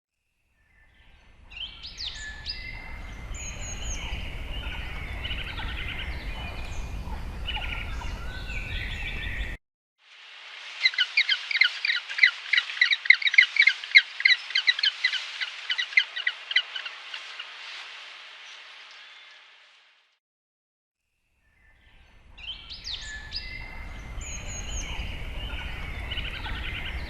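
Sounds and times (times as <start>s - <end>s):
birds calling: 1.5s - 9.6s, 10.8s - 17.6s, 22.4s - 27.0s.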